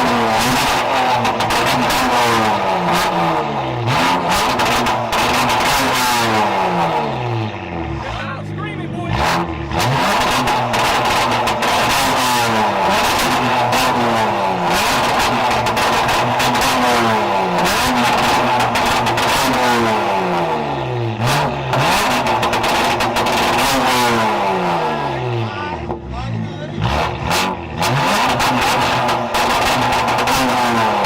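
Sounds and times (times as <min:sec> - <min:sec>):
car engine revving: 0:00.0 - 0:31.0
exhaust crackling pops: 0:22.0 - 0:23.8.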